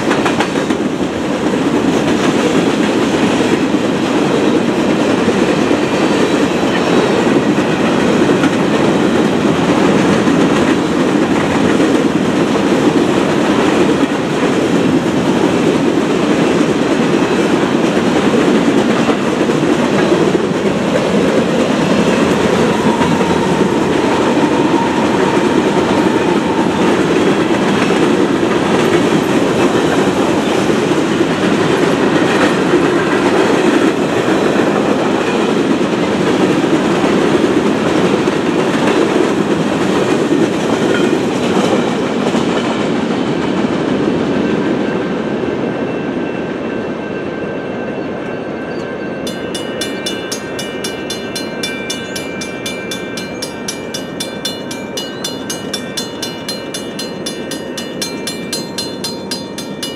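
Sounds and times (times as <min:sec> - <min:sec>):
train wheels clattering on rail: 0:00.0 - 0:48.2, 0:48.8 - 0:59.9
crossing bell ringing: 0:16.4 - 0:35.9, 0:44.4 - 0:59.9.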